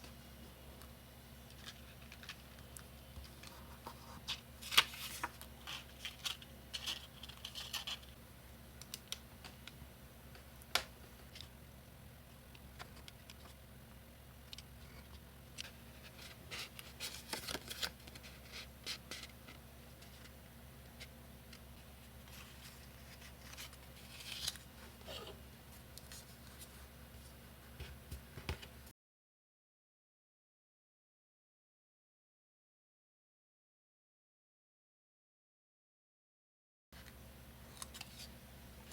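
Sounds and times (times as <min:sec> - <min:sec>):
scratchy paper rustles: 0:03.2 - 0:08.2, 0:22.2 - 0:25.3.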